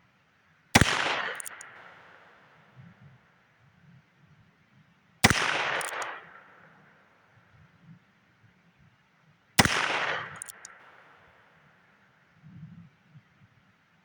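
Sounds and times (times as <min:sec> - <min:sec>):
revolver shots with echo: 0:00.8 - 0:02.2, 0:05.2 - 0:06.3, 0:09.6 - 0:11.0.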